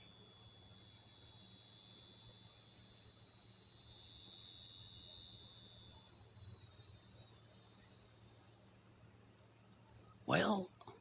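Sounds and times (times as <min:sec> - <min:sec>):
high-pitched insect buzzing: 0:00.0 - 0:08.9.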